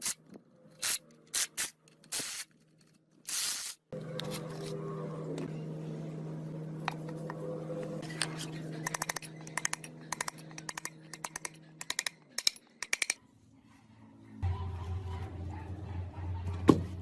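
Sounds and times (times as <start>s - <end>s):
machine hum: 3.9s - 13.2s
low hum: 4.0s - 16.6s.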